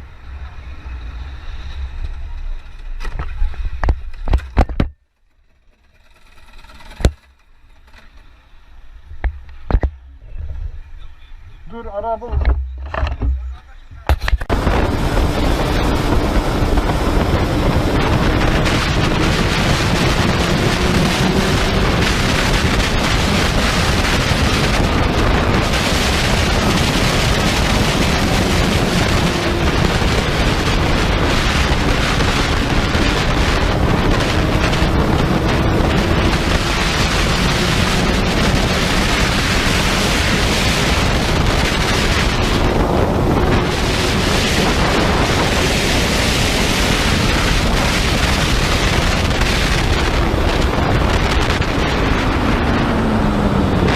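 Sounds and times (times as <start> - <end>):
faint engine drone: 0.0 - 53.9
wind buffeting microphone: 11.7 - 53.9.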